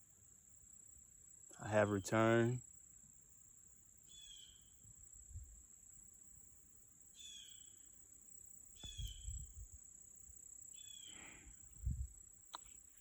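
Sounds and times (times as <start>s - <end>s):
high-pitched insect drone: 0.0s - 13.0s
bird chirping: 4.0s - 4.9s, 7.1s - 8.0s, 8.7s - 9.5s, 10.6s - 11.4s.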